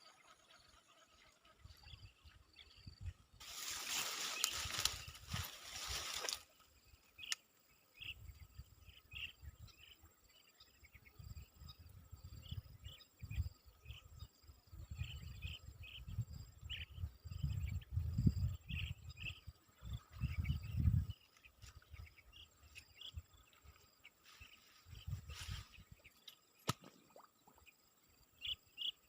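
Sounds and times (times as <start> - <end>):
insects trilling: 0.0 - 29.0
bird chirps: 7.1 - 29.0.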